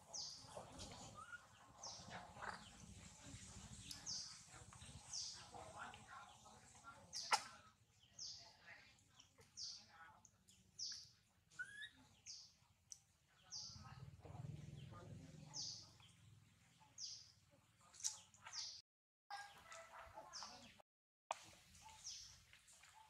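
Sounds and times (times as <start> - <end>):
small bird chirps: 0.0 - 8.5, 9.1 - 14.0.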